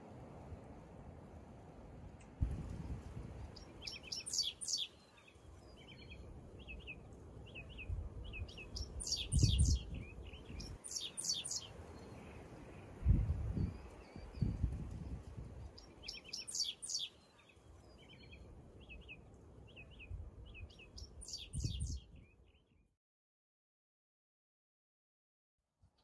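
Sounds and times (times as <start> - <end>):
songbirds trilling: 3.6 - 12.9, 15.8 - 22.0.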